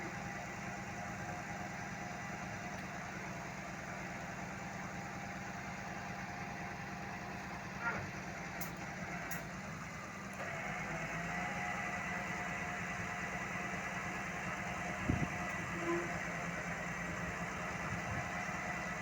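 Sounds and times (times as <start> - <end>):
heavy diesel engine idling: 0.0 - 19.0.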